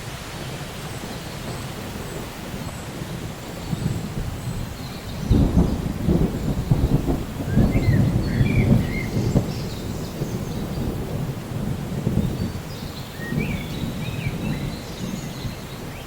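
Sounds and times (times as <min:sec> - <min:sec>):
steady rain: 0:00.0 - 0:16.0
thunder rumbling: 0:00.0 - 0:16.0.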